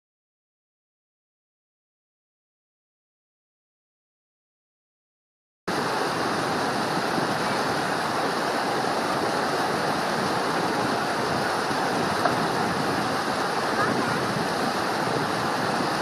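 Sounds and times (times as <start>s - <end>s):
running water rushing: 5.7s - 16.0s.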